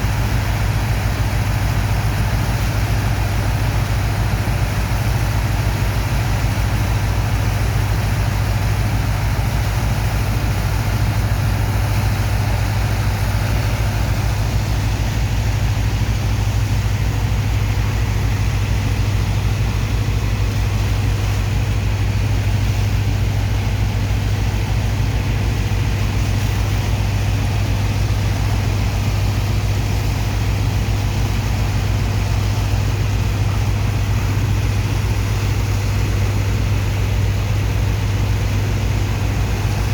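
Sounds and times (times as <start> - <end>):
large diesel engine droning: 0.0 - 39.9.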